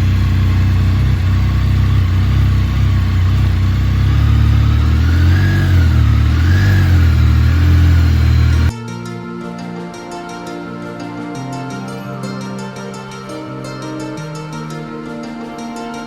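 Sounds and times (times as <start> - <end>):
motorcycle engine revving: 0.0 - 8.7.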